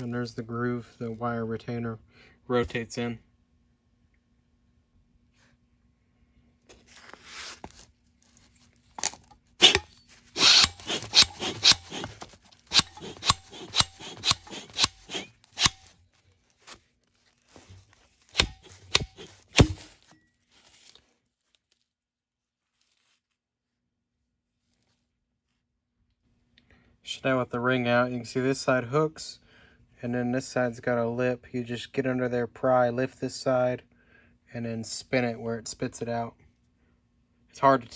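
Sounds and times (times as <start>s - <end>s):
metal clicks and scraping: 9.0s - 15.9s, 18.4s - 20.0s.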